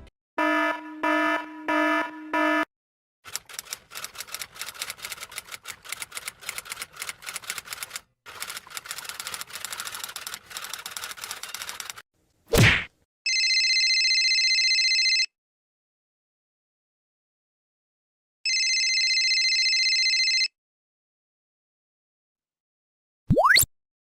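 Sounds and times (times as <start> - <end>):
rapid typewriter-like clicking: 3.3 - 12.0.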